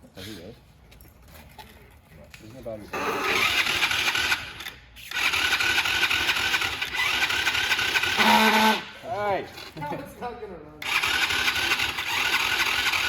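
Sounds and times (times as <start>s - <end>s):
engine cranking with electric starter: 3.0s - 8.9s, 10.8s - 13.0s.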